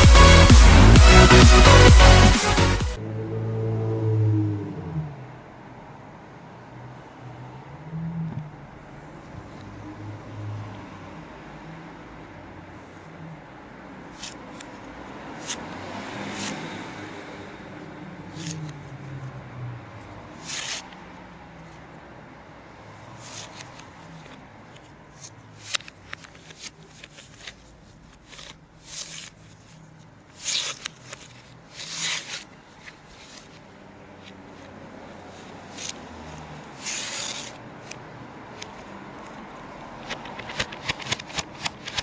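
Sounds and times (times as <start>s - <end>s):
hands rubbing and rustling objects: 23.1s - 42.0s
sharp clicks: 40.0s - 42.0s.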